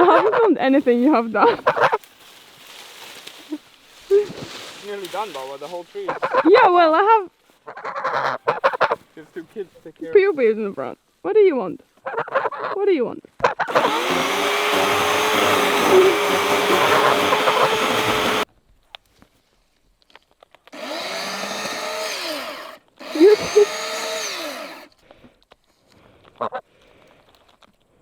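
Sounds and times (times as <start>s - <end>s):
chainsaw revving: 13.7s - 18.4s, 20.8s - 24.9s.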